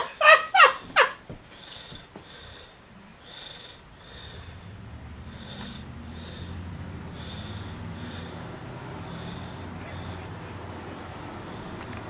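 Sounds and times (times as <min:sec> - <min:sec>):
low steady hum: 0:00.0 - 0:12.0
breathy sniffs: 0:01.5 - 0:10.6.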